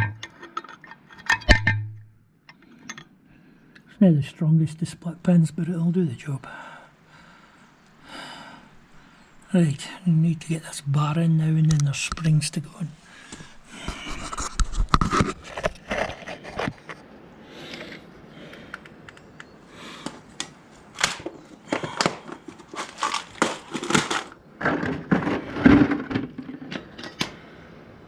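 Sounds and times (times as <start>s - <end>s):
metal parts clicking and rattling: 0.0s - 2.0s, 21.0s - 27.4s
rustling: 20.8s - 26.8s.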